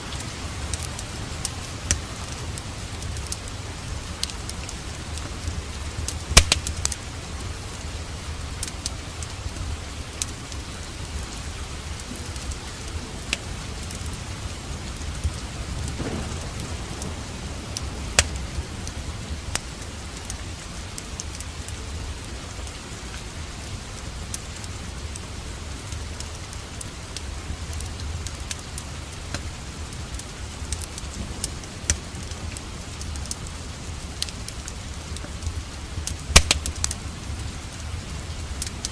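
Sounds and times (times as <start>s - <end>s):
steady rain: 0.0s - 38.9s
wood fire crackling and popping: 0.0s - 38.9s
low rumble: 14.3s - 21.0s.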